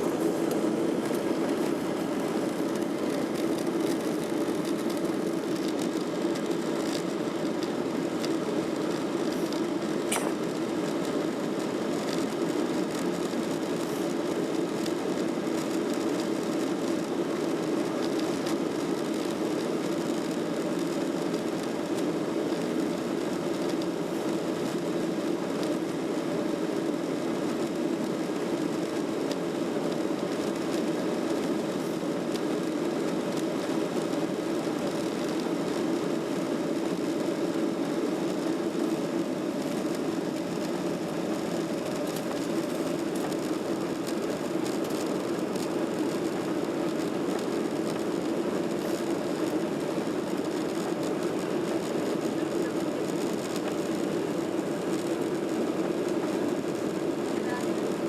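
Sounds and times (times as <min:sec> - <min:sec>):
jet engines rumbling: 0:00.0 - 0:11.9.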